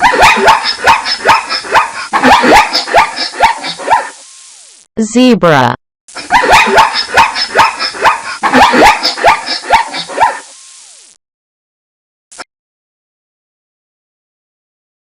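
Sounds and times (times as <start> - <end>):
zebra barking yelps: 0.0 - 4.2, 6.2 - 10.5.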